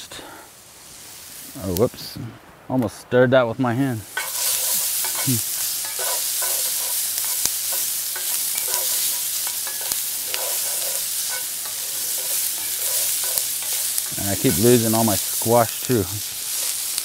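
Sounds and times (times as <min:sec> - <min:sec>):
vegetables sizzling in skillet: 0:00.0 - 0:02.2, 0:03.8 - 0:17.0
wooden spoon scraping pan: 0:04.1 - 0:15.9.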